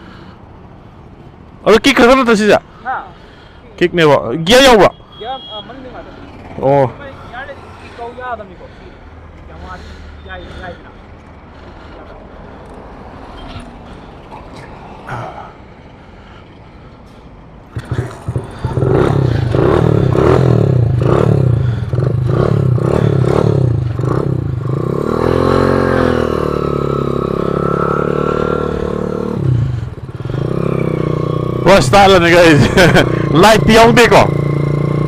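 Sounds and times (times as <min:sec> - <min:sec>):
motorcycle engine revving: 0:17.7 - 0:35.0.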